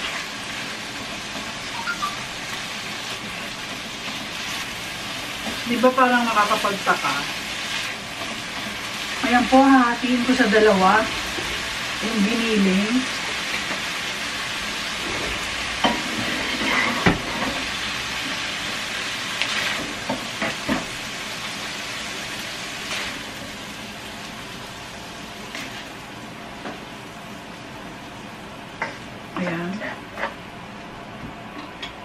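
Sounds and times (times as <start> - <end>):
meat sizzling in a pan: 0.0 - 29.3
metal spoon scraping a pan: 15.8 - 17.6.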